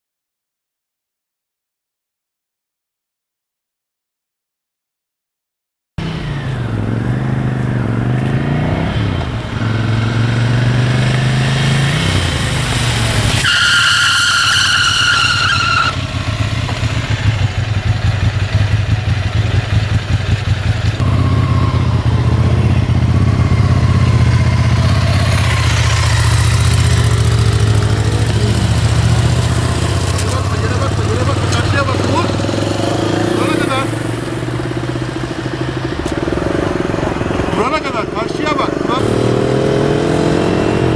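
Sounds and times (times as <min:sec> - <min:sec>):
motorcycle engine revving: 0:06.0 - 0:40.9
high squeal: 0:13.3 - 0:16.0, 0:21.0 - 0:27.6.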